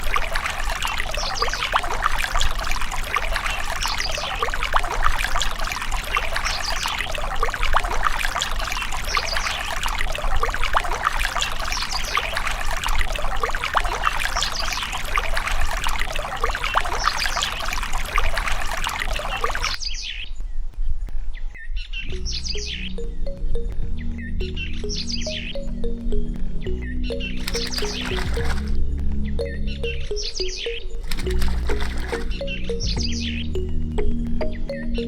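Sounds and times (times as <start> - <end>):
water pouring and splashing: 0.0 - 19.8, 27.4 - 28.8, 31.0 - 32.5.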